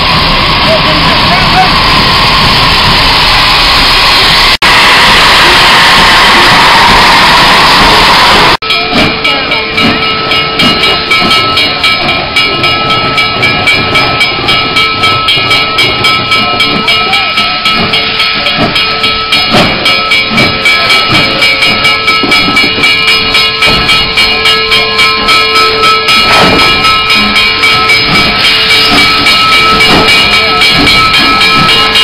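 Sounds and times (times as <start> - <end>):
steam train rhythmic beat: 0.0 - 32.0.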